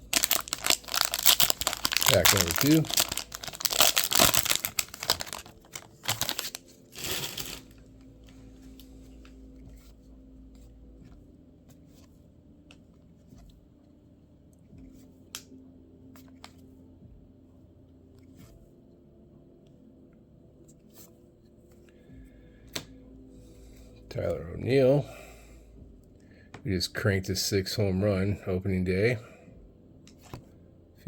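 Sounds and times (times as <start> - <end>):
cards clicking and rustling: 0.0 - 7.8
foil wrapper tearing and crinkling: 0.0 - 7.8.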